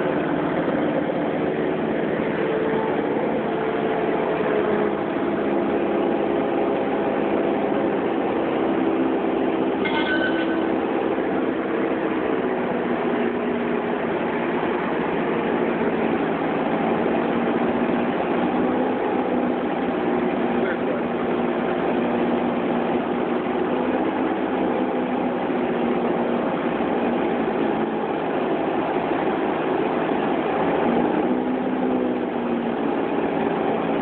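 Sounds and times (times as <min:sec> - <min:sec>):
plane engine droning: 0:00.0 - 0:34.0
brief high beep: 0:09.8 - 0:10.8.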